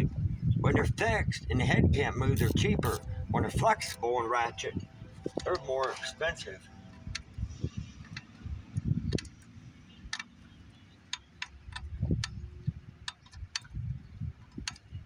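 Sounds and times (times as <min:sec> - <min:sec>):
ratcheting wrench clicking: 0:02.4 - 0:03.0.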